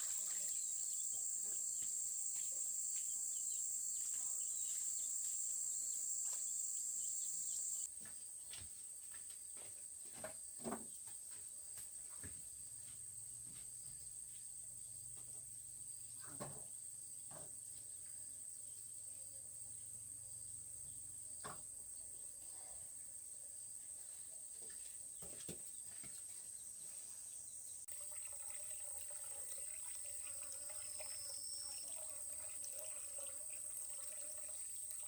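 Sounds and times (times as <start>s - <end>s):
insects chirring: 0.0s - 7.9s, 26.6s - 35.0s.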